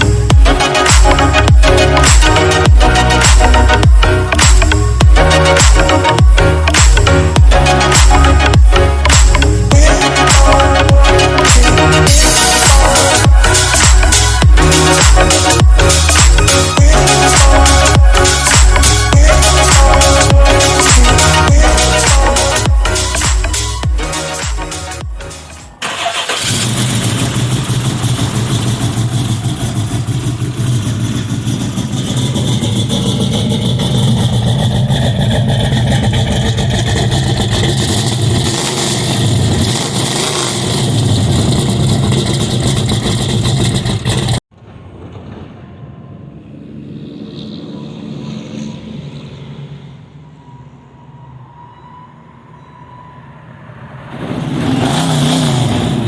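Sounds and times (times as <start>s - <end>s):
engine idling with throttle blips: 25.0s - 44.5s
quieter engine sound: 25.4s - 51.4s.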